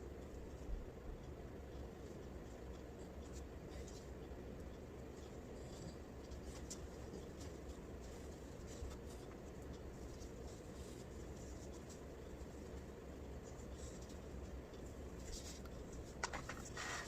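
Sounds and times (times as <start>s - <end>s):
steady low hum: 0.0s - 17.0s
faint scratching: 5.2s - 17.0s.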